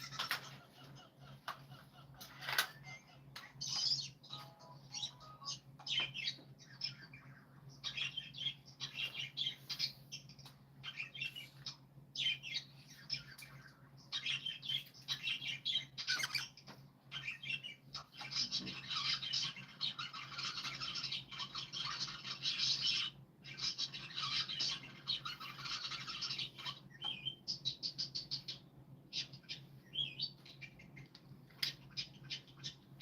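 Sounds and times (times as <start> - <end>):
birds chirping and squawking: 0.0 - 33.0.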